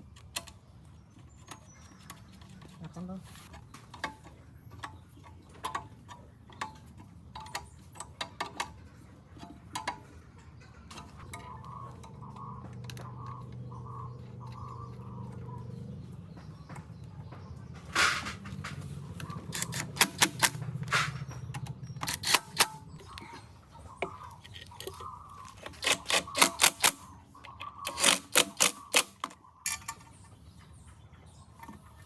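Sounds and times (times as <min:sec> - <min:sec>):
tools clicking at workbench: 0:19.2 - 0:23.0, 0:25.6 - 0:30.1.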